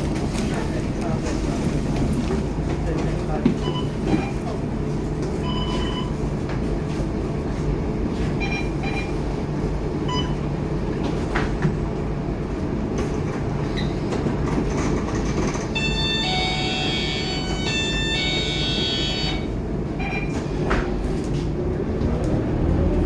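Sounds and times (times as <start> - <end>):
bus diesel engine rumble: 0.0 - 23.0
road noise: 9.3 - 23.0.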